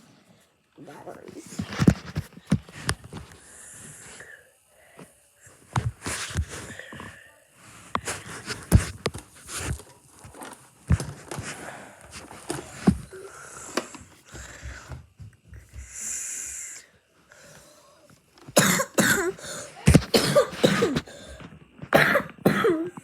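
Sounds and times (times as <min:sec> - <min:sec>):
person coughing: 0:18.6 - 0:23.0.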